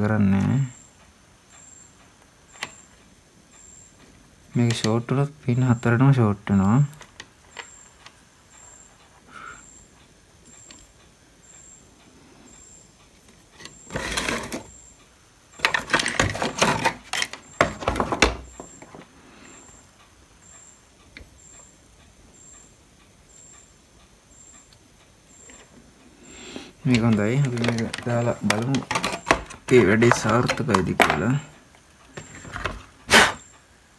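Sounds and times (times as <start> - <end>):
tools clattering on workbench: 13.9 - 14.7, 15.6 - 19.1, 26.9 - 33.4.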